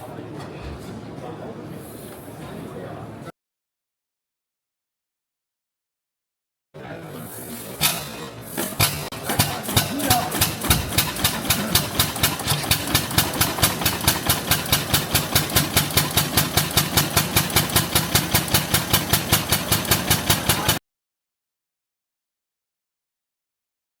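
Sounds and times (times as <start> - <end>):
single-cylinder engine running: 8.8 - 20.8.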